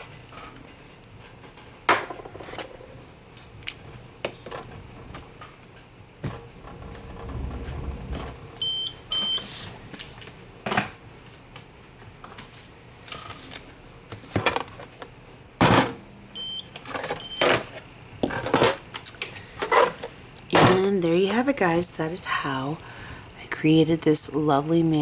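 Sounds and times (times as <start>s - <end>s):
short electronic beeps: 8.6s - 9.4s.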